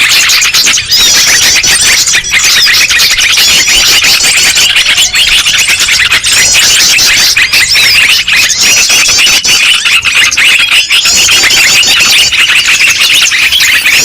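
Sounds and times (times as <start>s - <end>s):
songbirds chattering and trilling: 0.0s - 14.0s.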